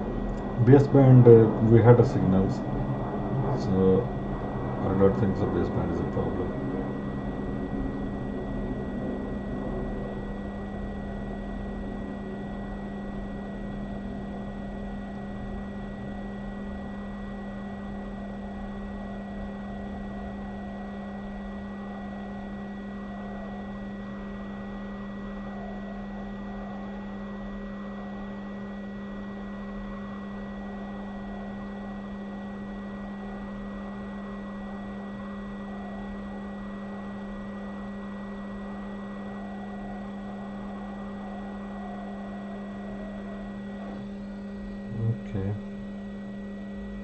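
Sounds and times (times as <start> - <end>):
hot air station blowing: 0.0 - 24.0
faint high whine: 0.0 - 47.0.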